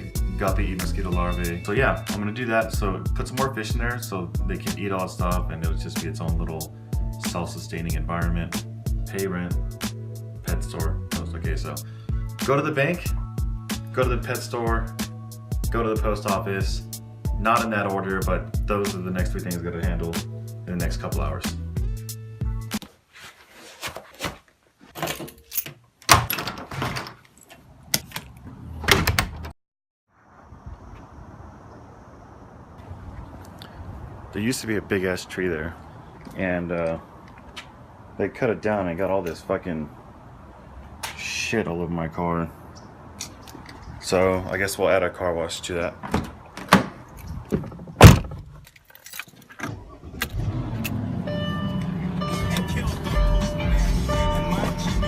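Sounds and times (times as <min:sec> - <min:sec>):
music from car stereo: 0:00.0 - 0:22.7, 0:51.3 - 0:55.0
door clicks and knocks: 0:25.0 - 0:27.2, 0:28.8 - 0:29.5, 0:46.0 - 0:48.6
door banging shut: 0:26.1 - 0:27.2, 0:28.8 - 0:29.5, 0:46.0 - 0:48.6
car engine running: 0:49.8 - 0:55.0.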